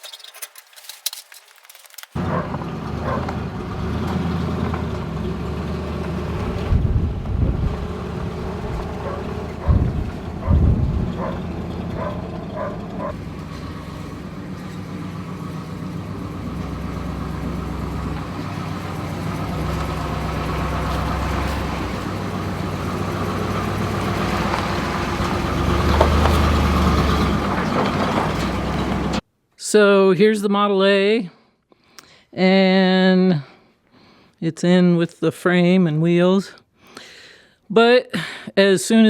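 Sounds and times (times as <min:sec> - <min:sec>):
short squeaks: 0:00.0 - 0:02.2
vehicle engine running: 0:02.2 - 0:29.2.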